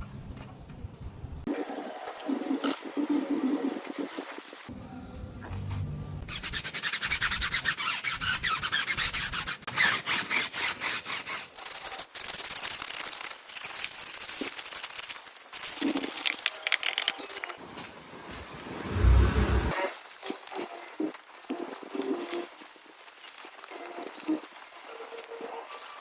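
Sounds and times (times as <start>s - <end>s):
brush scrubbing a surface: 1.6s - 4.7s, 6.3s - 17.3s.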